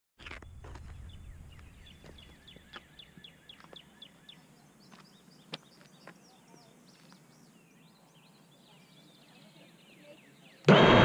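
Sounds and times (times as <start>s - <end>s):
bird calling: 0.3s - 10.6s
low rumble: 10.7s - 11.0s.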